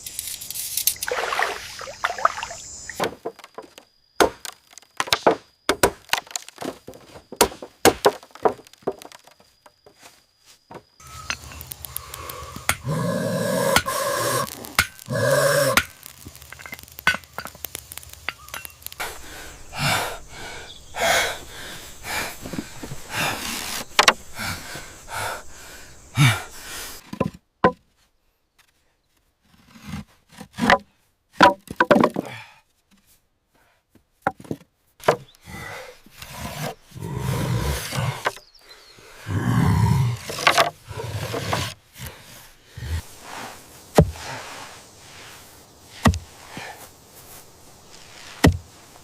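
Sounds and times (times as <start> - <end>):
knocks and chops on wood: 3.0 - 9.2, 48.4 - 48.6.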